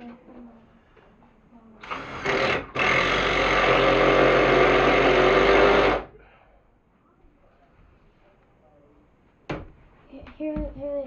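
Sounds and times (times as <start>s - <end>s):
power drill motor running: 1.8s - 6.1s.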